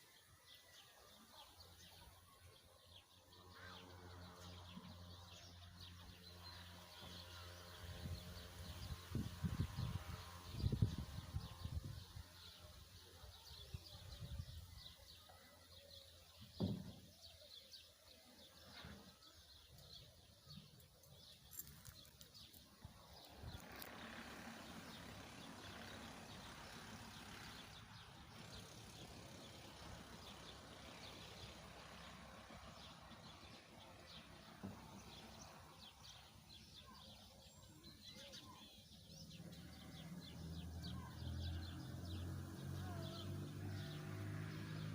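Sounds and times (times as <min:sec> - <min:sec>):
small birds chirping: 0:00.0 - 0:44.9
low thump: 0:16.6 - 0:17.0.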